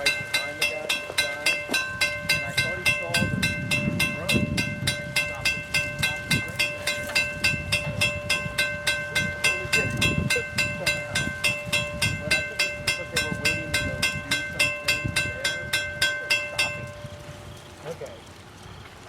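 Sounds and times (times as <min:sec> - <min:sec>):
crossing bell ringing: 0:00.0 - 0:18.2.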